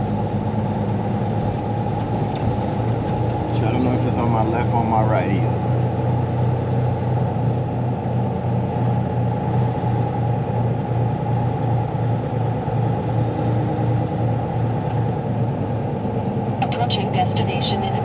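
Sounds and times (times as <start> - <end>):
truck engine pulsing drone: 0.0 - 18.0.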